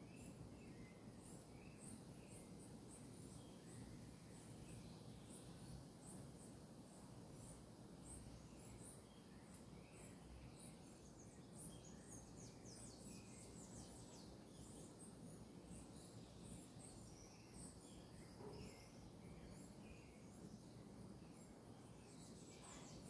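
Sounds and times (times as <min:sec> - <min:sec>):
birds chirping: 0:07.4 - 0:23.0.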